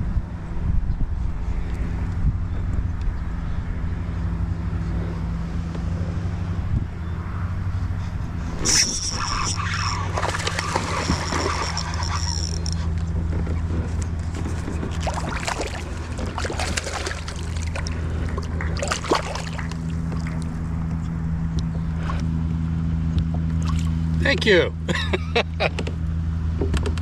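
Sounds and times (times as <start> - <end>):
steady low hum: 0.0 - 27.0
water sloshing against kayak: 8.5 - 21.0.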